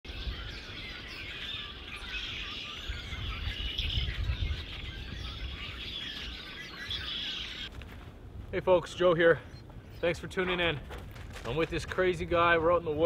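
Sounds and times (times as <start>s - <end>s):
small birds chirping: 0.1s - 7.7s, 8.5s - 13.0s.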